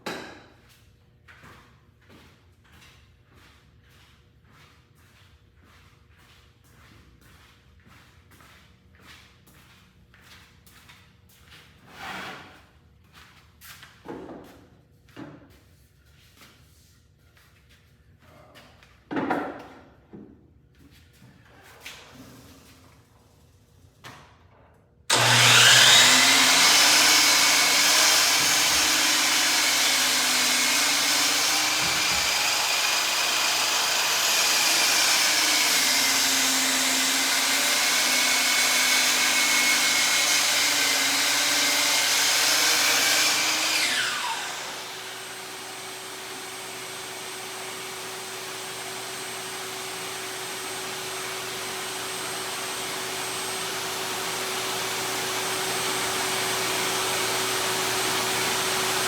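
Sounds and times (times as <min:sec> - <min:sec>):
miter saw whining: 0:25.1 - 0:59.0.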